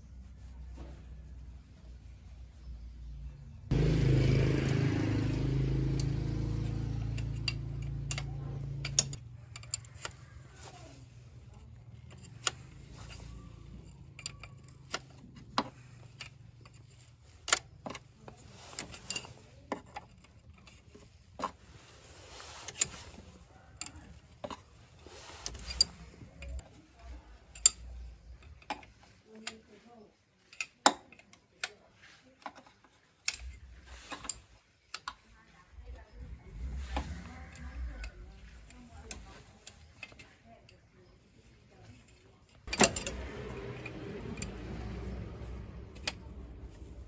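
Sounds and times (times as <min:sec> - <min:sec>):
sharp metallic clicks and knocks: 0:06.0 - 0:10.2, 0:42.5 - 0:47.0.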